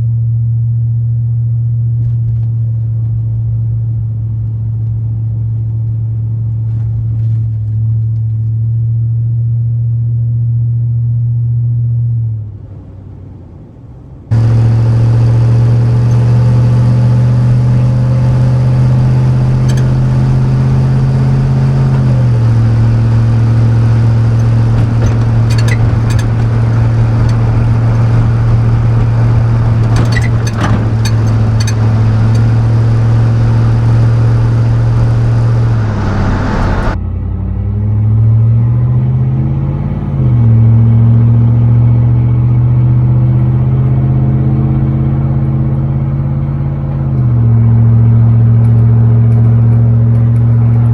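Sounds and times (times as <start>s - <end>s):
pickup exhaust droning: 14.3s - 37.0s.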